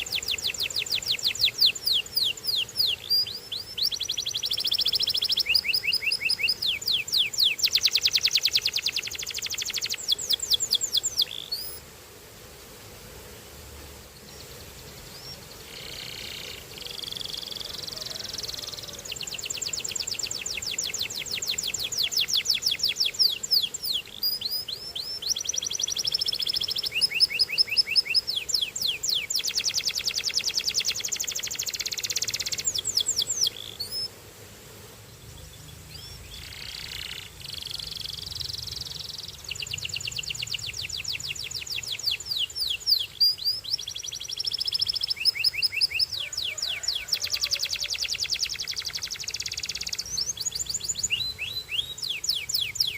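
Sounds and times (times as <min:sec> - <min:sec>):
canary singing trills: 0:00.0 - 0:11.8, 0:14.2 - 0:34.1, 0:35.2 - 0:52.9.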